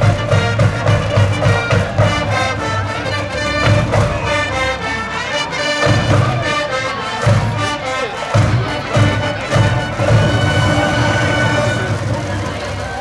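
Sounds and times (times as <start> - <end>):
drum beat: 0.0 - 4.8, 5.8 - 13.0
brass band playing: 0.0 - 13.0.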